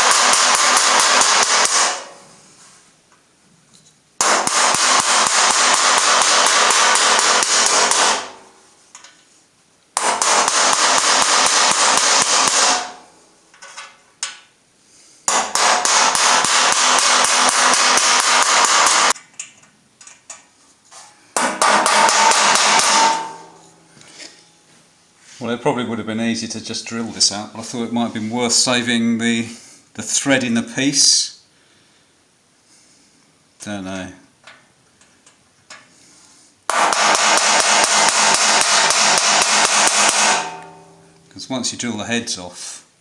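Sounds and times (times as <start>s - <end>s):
impact power tool rattling: 0.0s - 2.1s, 4.2s - 8.4s, 10.0s - 13.0s, 15.3s - 19.2s.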